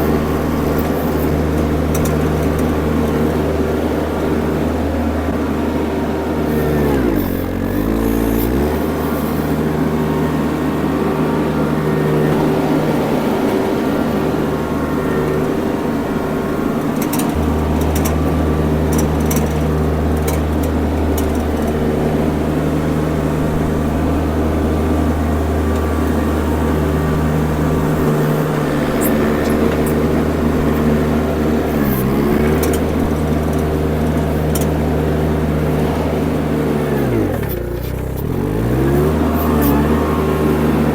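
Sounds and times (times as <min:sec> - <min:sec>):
skid steer engine running: 0:00.0 - 0:40.9
sharp clicks and clanks: 0:00.7 - 0:03.2, 0:17.0 - 0:21.9, 0:31.8 - 0:34.8.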